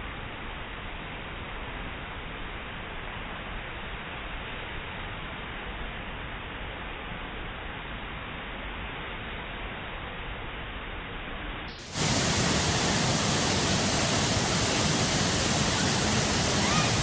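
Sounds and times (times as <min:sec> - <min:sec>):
waterfall rushing: 0:11.8 - 0:17.0.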